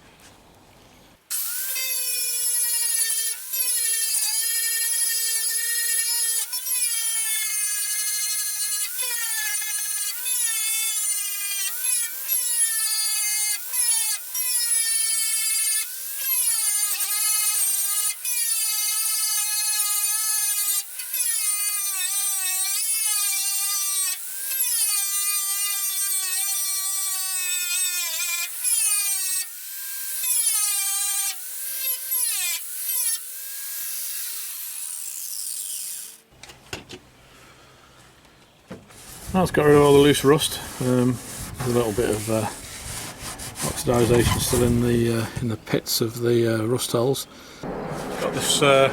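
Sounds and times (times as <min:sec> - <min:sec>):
angle grinder wire wheel on metal: 0:39.0 - 0:45.3, 0:47.6 - 0:48.9.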